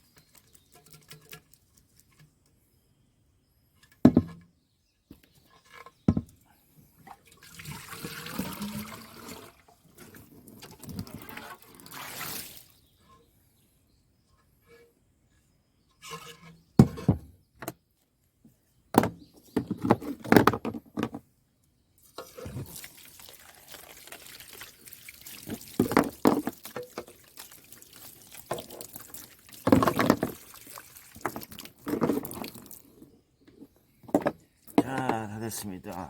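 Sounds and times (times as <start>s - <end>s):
water splashing and running: 7.3s - 12.8s, 22.1s - 32.8s.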